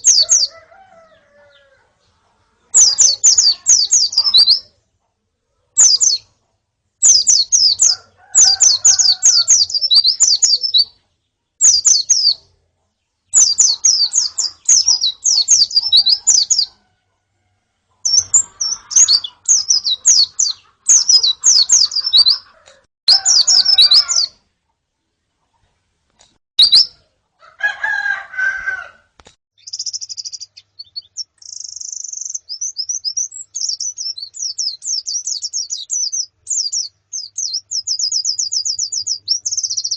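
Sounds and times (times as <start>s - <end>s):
lower-pitched chattering call: 0.0s - 1.8s, 2.6s - 4.7s, 5.8s - 6.3s, 7.0s - 11.0s, 11.6s - 12.5s, 13.3s - 16.9s, 18.0s - 24.4s, 29.6s - 39.9s
birds chirping high notes: 0.0s - 4.8s, 5.8s - 6.3s, 7.0s - 12.5s, 13.3s - 16.8s, 18.0s - 24.4s, 26.6s - 27.0s, 29.6s - 39.9s.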